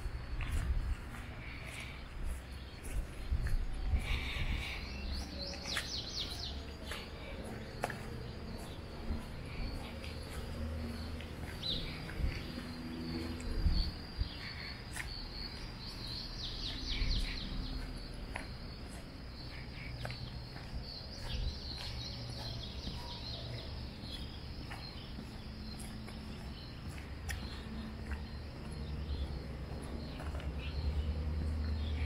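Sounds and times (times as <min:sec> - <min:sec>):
birds chirping: 0:00.0 - 0:32.0
low steady outdoor rumble: 0:00.0 - 0:32.0.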